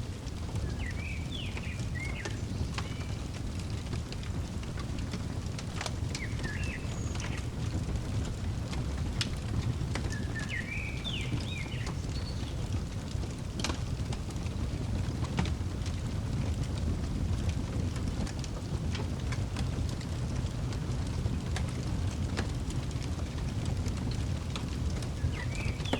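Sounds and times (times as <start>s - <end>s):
fire crackling and popping: 0.0s - 25.9s
bird chirping: 0.6s - 3.2s, 6.1s - 7.7s, 10.0s - 12.6s, 25.2s - 25.9s.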